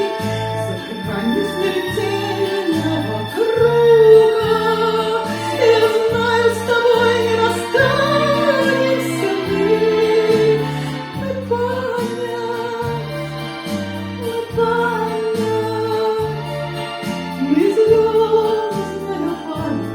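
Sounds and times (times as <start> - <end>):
person singing long held notes: 0.0 - 13.2
chordal accompaniment: 0.0 - 19.9.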